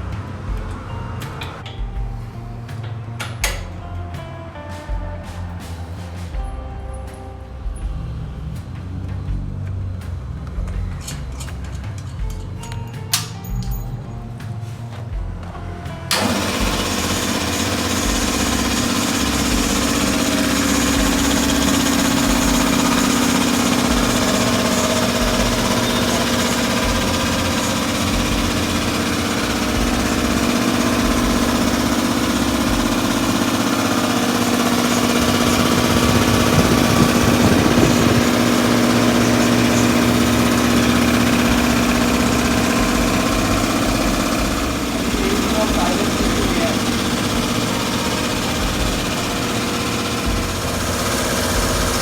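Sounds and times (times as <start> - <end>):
air compressor running: 16.1 - 52.0.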